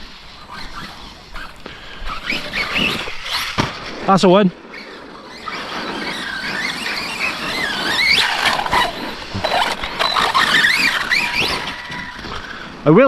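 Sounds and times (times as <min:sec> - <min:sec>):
electric motor whining: 0:04.6 - 0:13.0.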